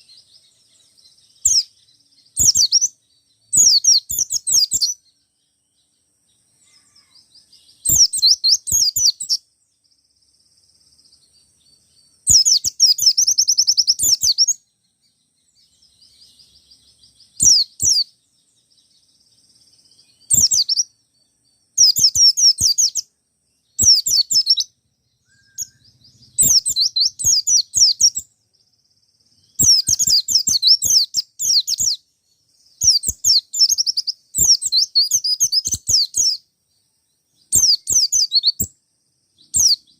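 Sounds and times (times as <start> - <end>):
bird twittering song: 0.0 - 39.9
soft bird twittering: 0.0 - 39.9.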